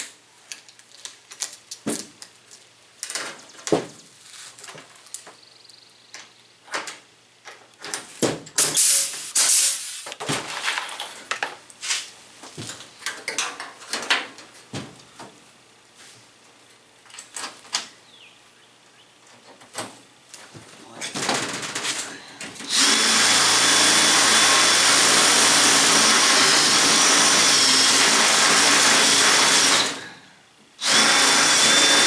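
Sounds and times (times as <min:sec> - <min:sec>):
loud hiss burst: 0:08.6 - 0:10.2.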